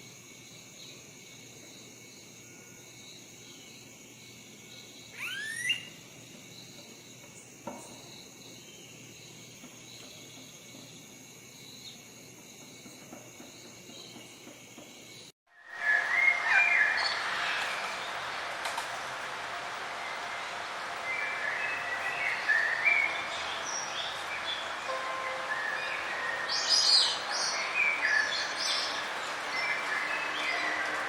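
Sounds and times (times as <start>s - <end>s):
insect chorus with high trills: 0.0s - 31.0s
bird chirping: 5.1s - 6.0s
bird call sweeping in pitch: 5.2s - 5.9s
noisy background: 15.6s - 31.0s.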